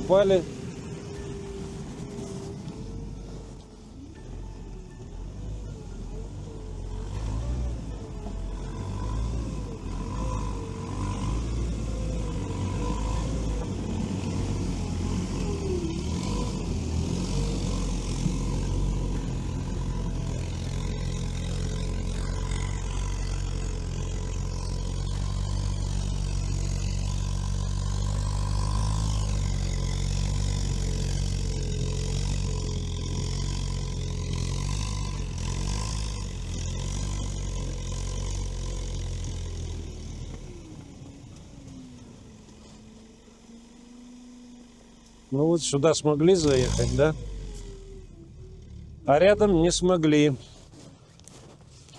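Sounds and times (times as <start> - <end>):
high wavering whine: 0.0 - 7.1
vehicle engine under load: 0.0 - 51.9.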